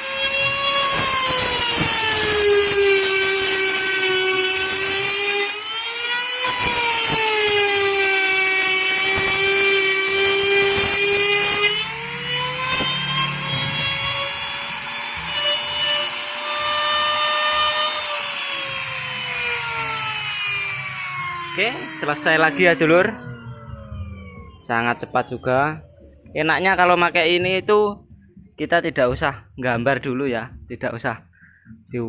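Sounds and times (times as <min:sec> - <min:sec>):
wood router whining: 0:00.0 - 0:28.1.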